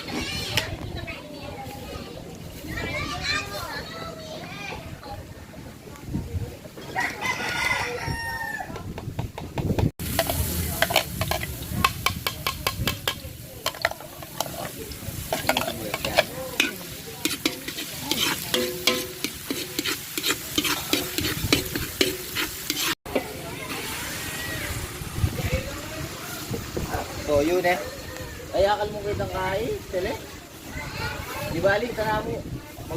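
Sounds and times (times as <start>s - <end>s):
noodles sizzling in a pan: 10.0s - 25.1s
metal spatula scraping a pan: 12.1s - 23.3s.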